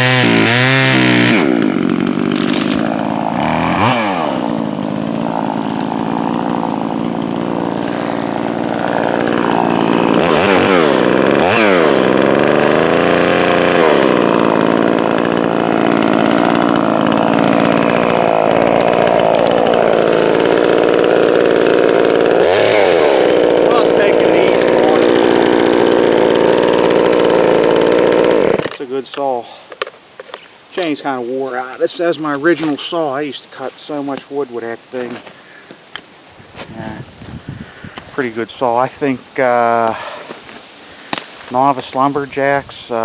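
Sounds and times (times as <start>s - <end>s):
chainsaw cutting wood: 0.0s - 28.8s, 31.8s - 33.0s, 33.8s - 37.1s, 38.0s - 38.4s, 39.5s - 41.6s
chainsaw revving: 0.0s - 28.8s.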